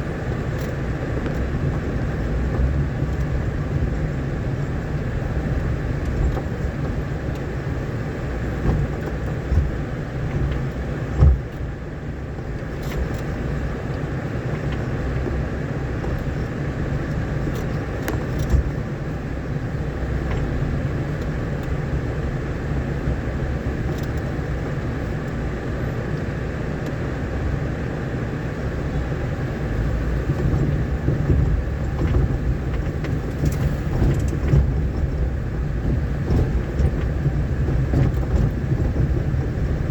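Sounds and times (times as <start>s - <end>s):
vehicle rumbling on dirt road: 0.0s - 39.9s
knocks over bumps: 8.4s - 11.6s, 29.6s - 39.9s.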